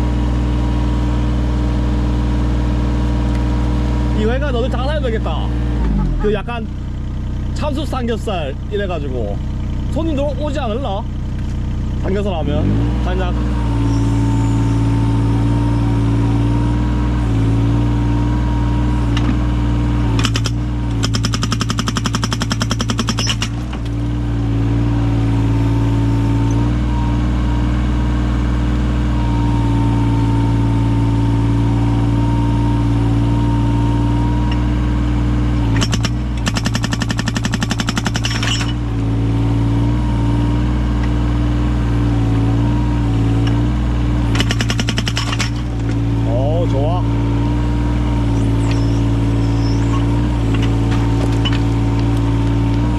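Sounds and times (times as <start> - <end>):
excavator diesel engine: 0.0 - 52.9
hydraulic breaker hammering: 20.1 - 24.0, 35.7 - 38.9, 44.3 - 46.0.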